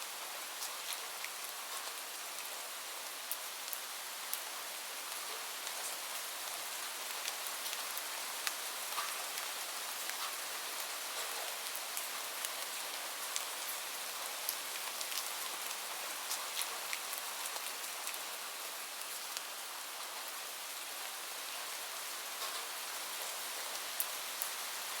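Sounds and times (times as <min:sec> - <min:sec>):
steady rain: 0:00.0 - 0:25.0.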